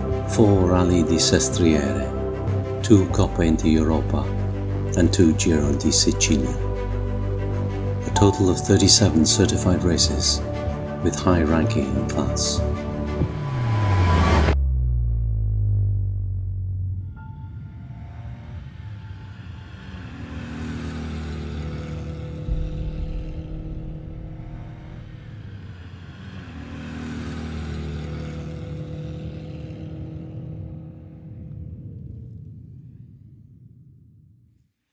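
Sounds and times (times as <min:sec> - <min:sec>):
car engine running: 0:00.0 - 0:17.2, 0:19.5 - 0:29.8.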